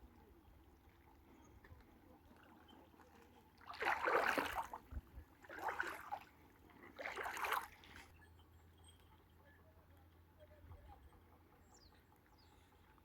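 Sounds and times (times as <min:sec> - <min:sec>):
water splashing: 0:03.6 - 0:08.1.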